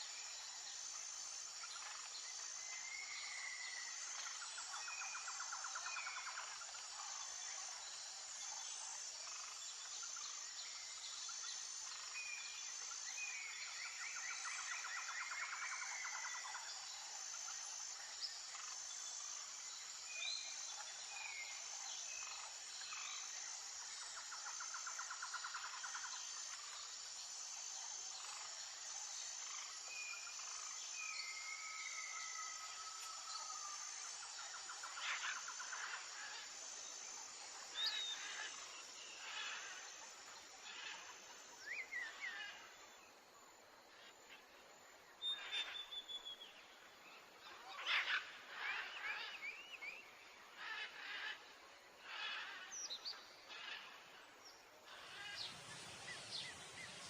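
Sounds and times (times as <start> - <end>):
high insect hum: 0.0 - 57.0
bird calls: 54.8 - 57.0.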